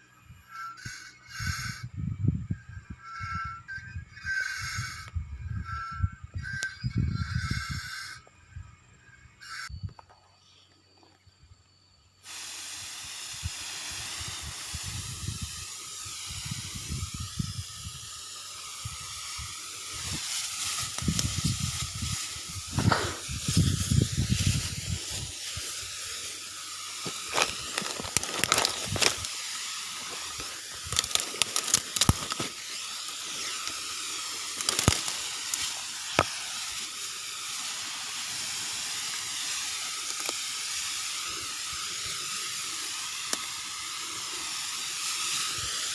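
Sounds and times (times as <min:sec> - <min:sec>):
hiss of spray: 0:00.5 - 0:01.8, 0:12.2 - 0:45.9.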